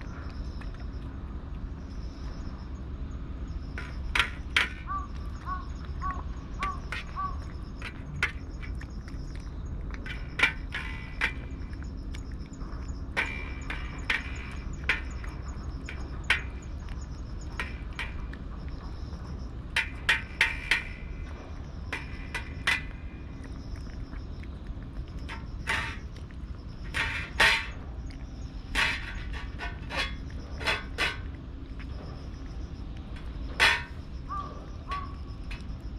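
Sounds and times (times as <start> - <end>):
low background hum: 0.0 - 35.9
sharp clicks and crunches: 3.7 - 35.9
faint high chirping: 31.6 - 35.9.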